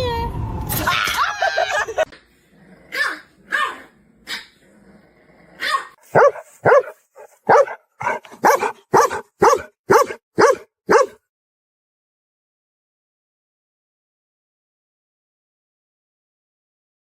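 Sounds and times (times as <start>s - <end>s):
dog barking: 5.6s - 11.2s.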